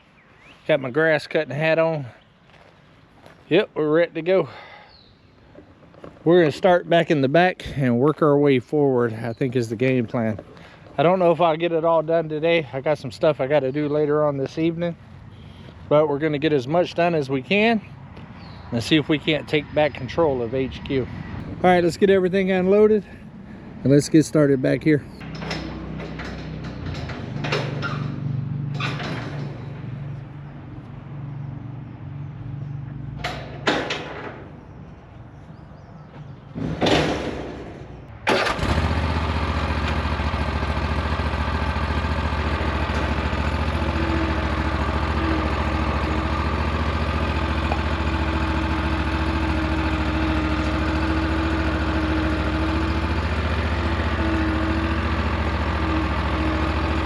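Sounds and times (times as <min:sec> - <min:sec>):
engine starting and idling: 0:25.2 - 0:30.0, 0:36.8 - 0:57.0
knocks and clunks: 0:25.2 - 0:30.2, 0:33.2 - 0:34.6, 0:36.1 - 0:38.4.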